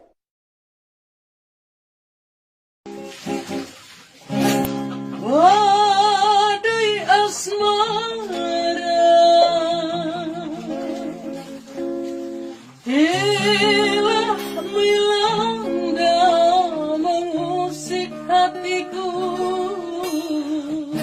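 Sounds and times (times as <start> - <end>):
acoustic guitar chords: 2.9 - 21.0
young man singing: 5.2 - 11.0, 12.9 - 21.0.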